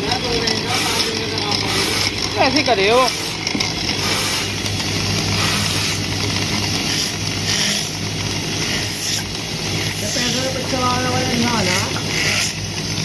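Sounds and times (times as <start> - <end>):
hand tool cutting spinning wood: 0.0 - 13.0
wood lathe humming: 0.0 - 13.0.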